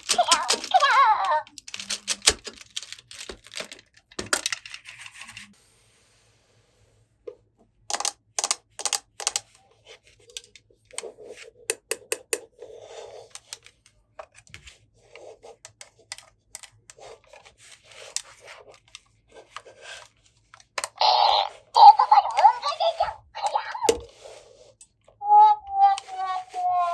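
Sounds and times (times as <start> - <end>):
plastic toy pieces clicking: 0.0 - 5.4, 7.9 - 9.5
scraping and rubbing: 21.8 - 26.9.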